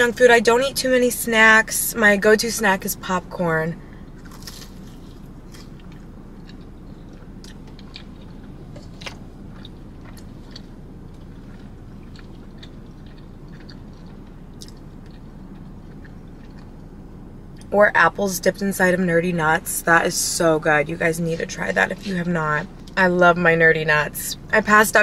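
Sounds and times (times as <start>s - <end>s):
steady low hum: 0.0s - 25.0s
chewing crunchy food: 3.9s - 17.7s
mouth clicks and crunches: 4.2s - 17.7s.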